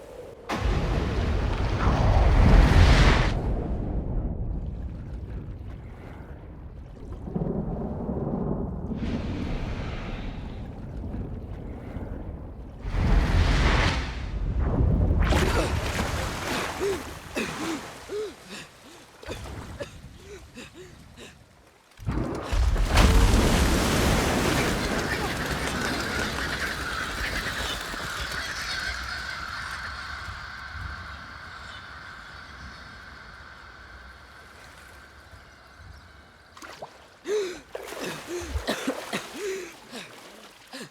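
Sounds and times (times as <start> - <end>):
floodwater rushing: 4.5 - 40.9
rising and falling vocal calls: 24.8 - 34.4
person gasping and whimpering: 37.3 - 38.7.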